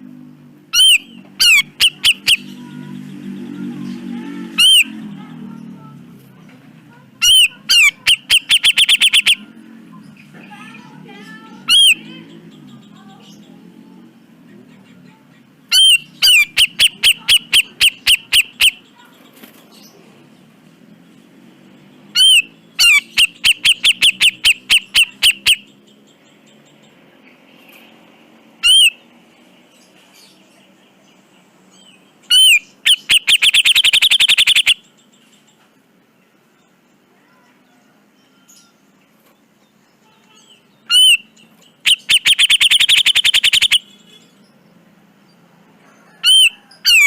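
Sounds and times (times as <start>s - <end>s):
bulbul whistle and harsh calls: 0.7s - 2.8s, 4.5s - 5.0s, 7.2s - 9.5s, 11.6s - 12.2s, 15.7s - 19.0s, 22.1s - 25.9s, 28.6s - 29.1s, 31.7s - 35.1s, 40.0s - 44.5s, 46.1s - 47.0s.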